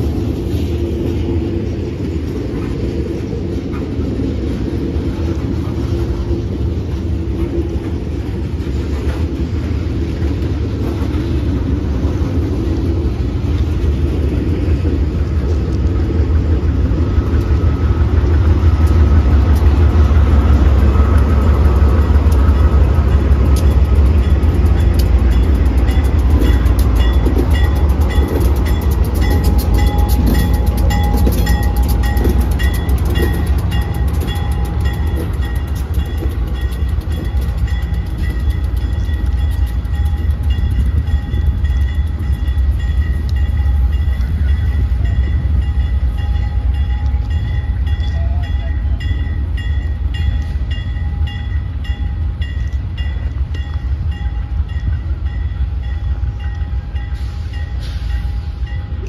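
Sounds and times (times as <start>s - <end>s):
diesel locomotive engine rumble: 0.0s - 59.0s
freight train rolling past: 0.0s - 59.0s
bell ringing: 24.2s - 59.0s.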